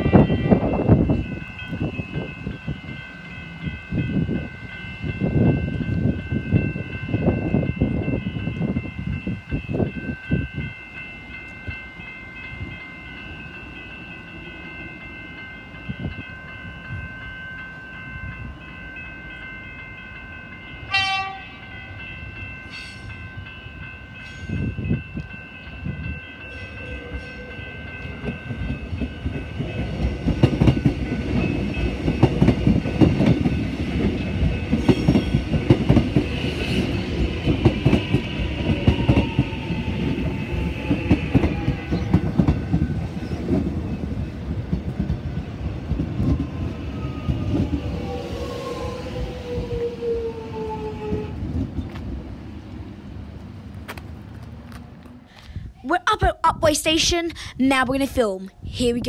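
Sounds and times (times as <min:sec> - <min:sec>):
train horn: 0:20.9 - 0:21.7
train wheels clattering: 0:28.0 - 0:46.6.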